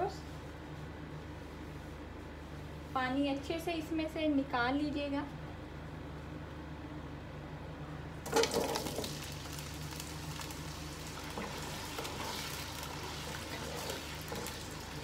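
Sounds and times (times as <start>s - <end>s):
potatoes sizzling in oil: 8.3s - 15.0s
wooden spatula stirring: 11.1s - 15.0s.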